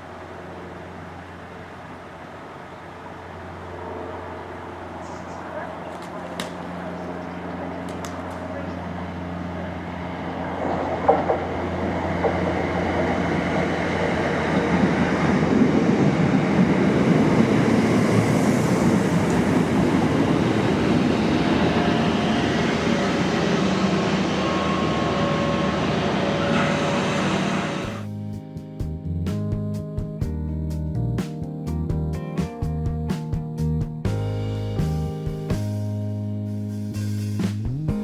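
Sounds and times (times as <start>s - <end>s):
electric train rolling on rails: 0.0s - 28.1s
faint steady whines: 0.0s - 28.1s.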